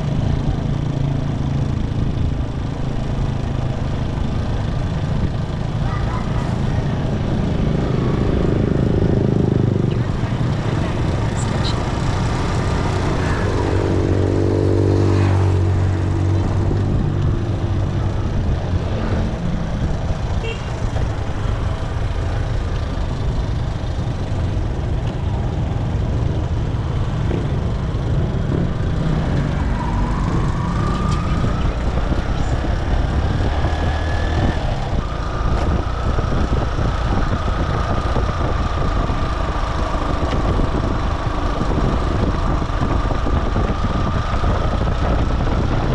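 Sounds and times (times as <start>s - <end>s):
motorcycle engine running: 0.0s - 45.9s
traffic: 0.0s - 45.9s
wind and road noise: 0.0s - 45.9s
whine rising in pitch: 29.3s - 32.8s.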